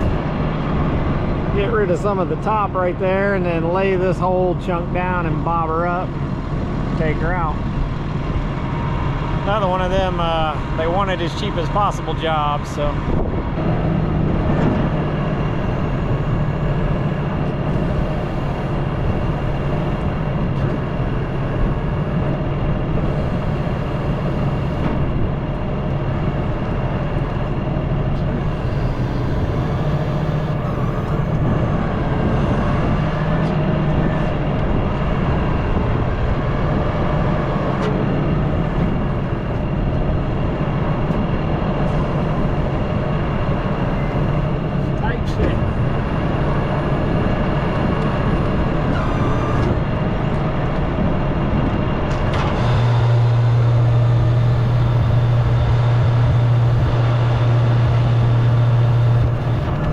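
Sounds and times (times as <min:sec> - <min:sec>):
excavator diesel engine running: 0:00.0 - 0:59.9
faint hydraulic whine: 0:14.6 - 0:34.3, 0:37.7 - 0:41.2, 0:41.8 - 0:46.0, 0:52.1 - 0:59.9.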